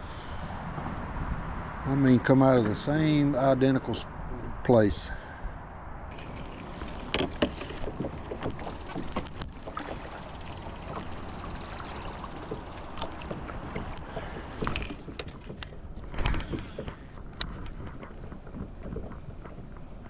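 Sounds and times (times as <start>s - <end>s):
knocks and clicks: 6.1s - 11.1s
moving water: 6.1s - 20.0s
paddle strokes in water: 6.1s - 20.0s.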